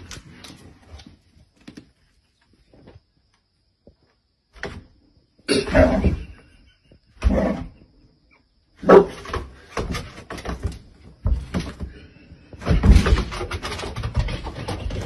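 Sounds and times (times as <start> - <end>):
dog barking: 8.8 - 9.3
knocks and scuffling: 8.9 - 15.0.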